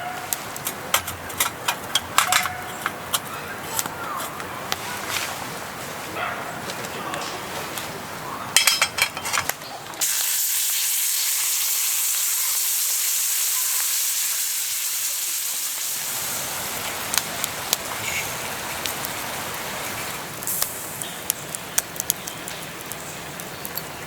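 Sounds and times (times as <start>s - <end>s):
food sizzling on a griddle: 10.0s - 24.0s
sharp crackles: 15.8s - 24.0s.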